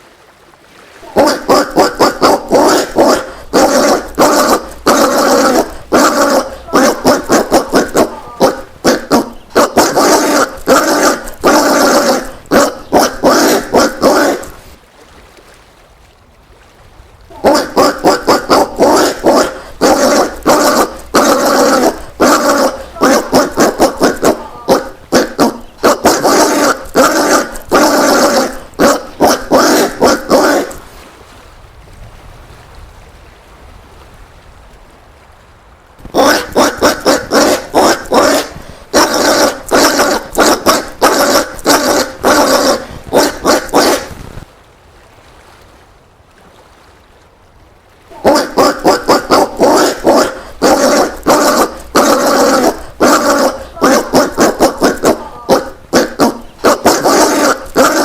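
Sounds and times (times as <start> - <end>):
peccary grunting: 1.0 - 14.6, 17.3 - 30.9, 36.1 - 44.1, 48.1 - 58.0.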